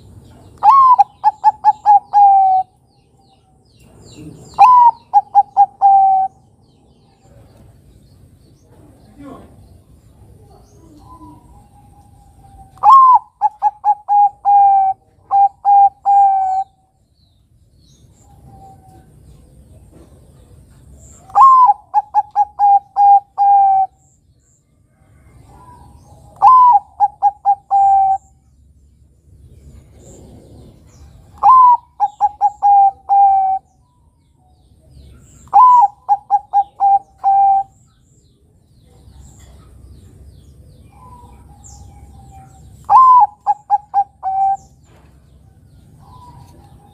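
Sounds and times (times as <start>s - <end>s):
dove cooing: 0.6s - 2.8s, 4.2s - 6.4s, 10.3s - 16.8s, 21.2s - 24.0s, 25.2s - 28.4s, 29.8s - 33.8s, 35.2s - 37.8s, 40.9s - 45.0s.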